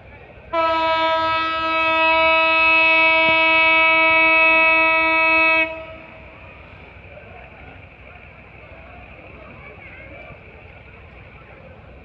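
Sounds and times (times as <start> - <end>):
train horn blast: 0.5 - 6.3.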